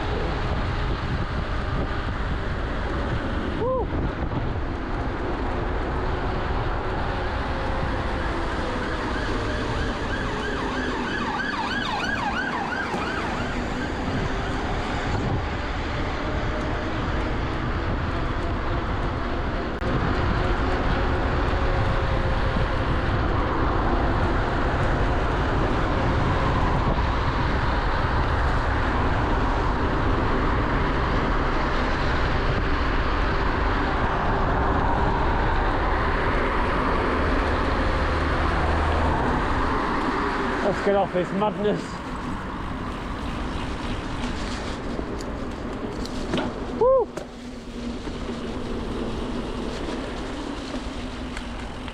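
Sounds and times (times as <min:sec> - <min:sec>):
bike road noise: 0:00.0 - 0:51.9
wind buffeting microphone: 0:00.0 - 0:51.9
wavering motor whine: 0:06.5 - 0:17.1.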